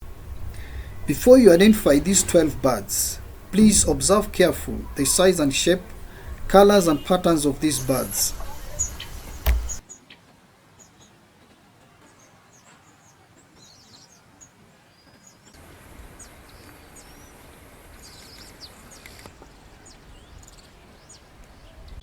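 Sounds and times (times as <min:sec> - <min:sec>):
birds chirping: 0:00.0 - 0:10.2, 0:10.8 - 0:22.0
background hiss: 0:00.0 - 0:11.2, 0:15.6 - 0:21.5.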